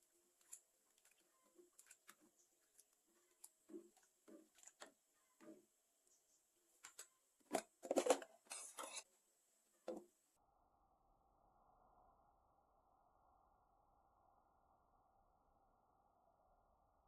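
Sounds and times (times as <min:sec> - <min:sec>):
kitchen clicks and knocks: 0:06.9 - 0:09.0
scraping in kitchen: 0:07.5 - 0:09.1.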